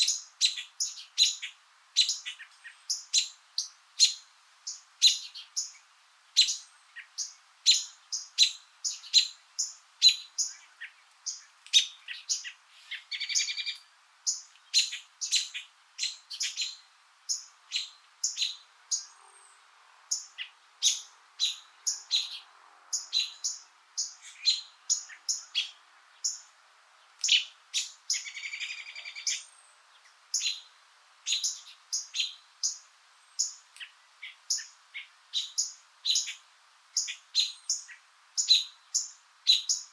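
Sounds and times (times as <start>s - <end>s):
small birds chirping: 0.0s - 39.9s
buzzy bird trill: 6.4s - 19.2s.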